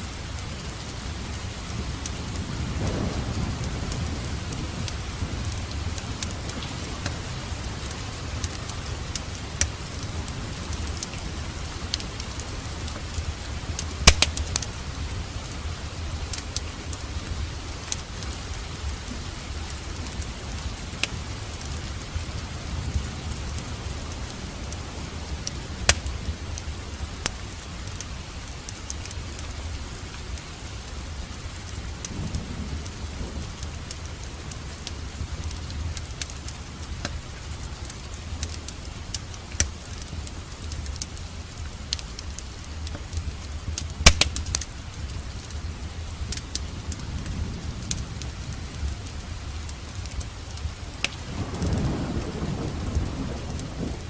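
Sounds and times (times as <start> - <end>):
steady rain: 0.0 - 54.0
wood fire crackling and popping: 2.0 - 29.5, 31.6 - 53.7
loud sharp fire cracks: 13.7 - 14.9, 25.4 - 26.4, 41.9 - 47.1.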